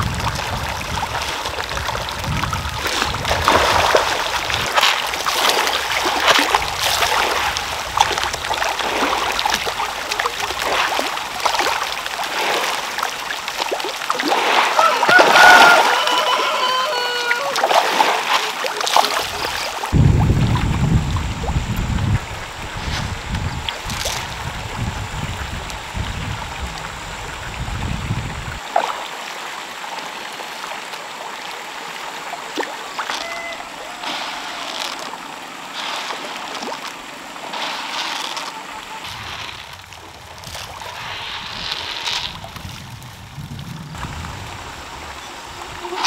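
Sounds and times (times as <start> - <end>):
water splashing: 0.0 - 46.0
deep rumble: 19.9 - 28.6.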